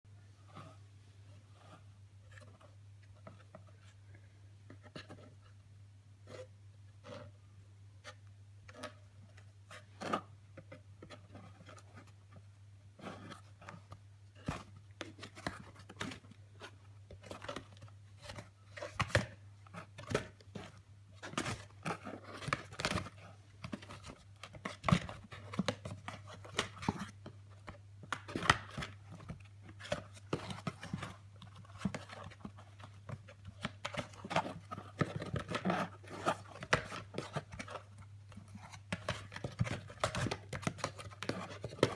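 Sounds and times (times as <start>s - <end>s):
cat paws scratching cardboard box: 13.0s - 41.9s.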